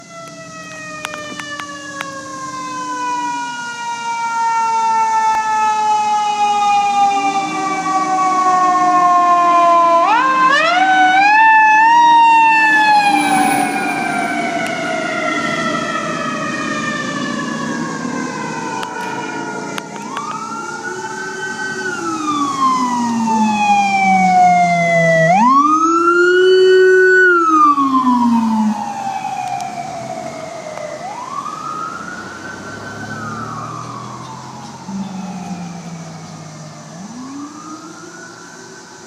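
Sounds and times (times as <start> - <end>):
fire truck siren winding: 0.0 - 38.9
low horn tone: 6.0 - 11.2, 12.7 - 15.7.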